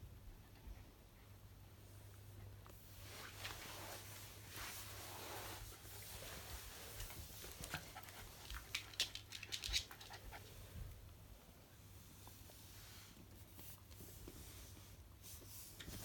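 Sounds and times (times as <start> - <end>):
dog panting softly: 5.5 - 11.0.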